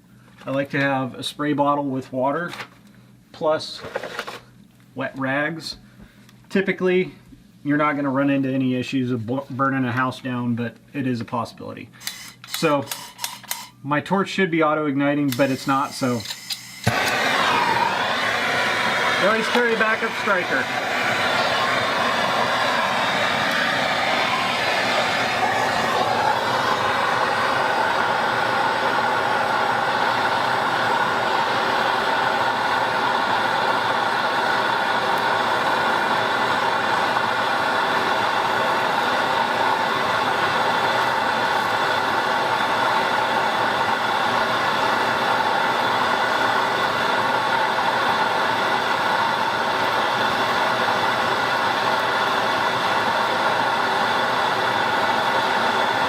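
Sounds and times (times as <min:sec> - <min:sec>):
gas torch hissing: 0:12.0 - 0:13.7, 0:15.2 - 0:56.0
water boiling in pipe: 0:15.3 - 0:56.0.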